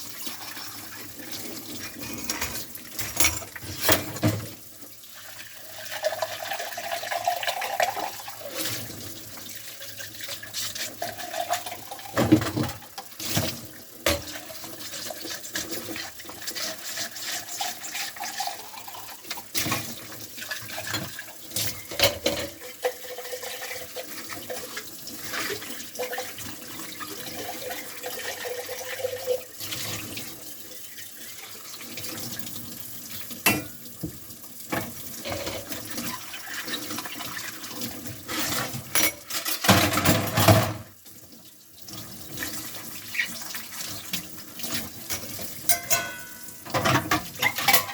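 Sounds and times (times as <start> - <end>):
dishes and cups clinking: 1.9 - 4.4, 20.9 - 22.6, 38.9 - 40.9, 45.1 - 47.9
tap running into sink: 33.4 - 36.1.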